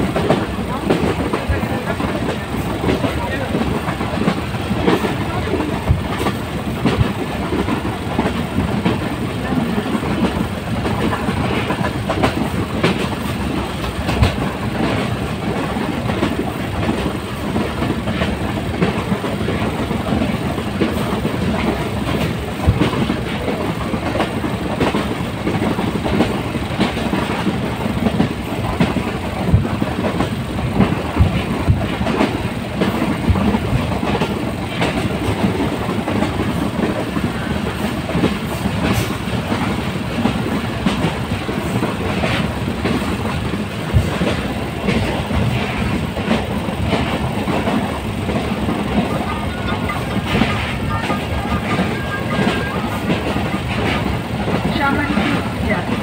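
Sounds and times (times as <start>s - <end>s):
train rumbling on track: 0.0s - 56.0s
wheels clicking over rail joints: 0.0s - 56.0s.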